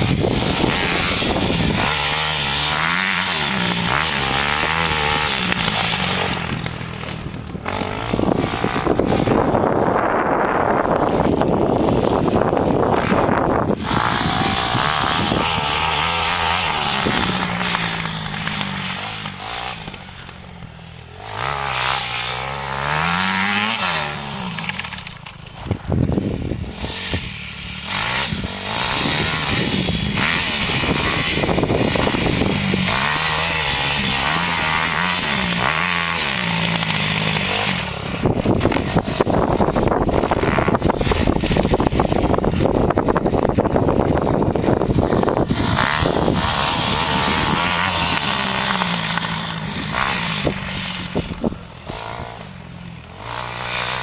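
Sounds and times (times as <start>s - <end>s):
motorcycle engine revving: 0.0s - 54.0s
rough rasping noise: 0.0s - 54.0s.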